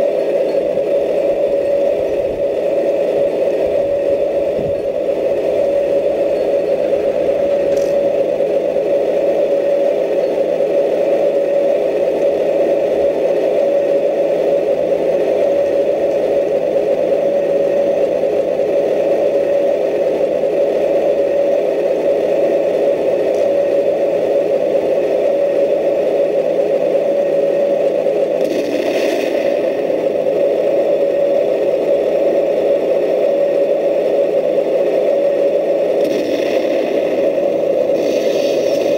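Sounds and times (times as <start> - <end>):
high hiss: 35.9 - 38.9.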